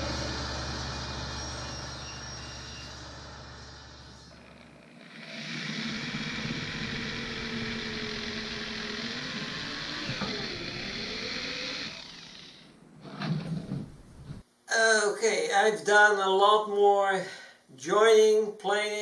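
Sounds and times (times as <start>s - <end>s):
electric power tool running: 0.0s - 12.6s.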